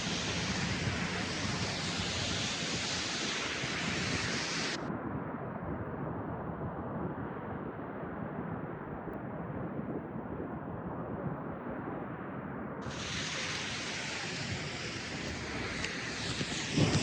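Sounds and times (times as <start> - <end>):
distant traffic: 0.0 - 4.8, 12.8 - 17.0
wind: 0.0 - 17.0.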